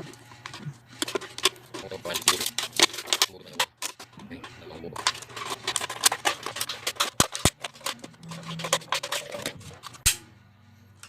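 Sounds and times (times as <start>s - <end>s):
scissors cutting plastic bottle: 5.0s - 10.1s.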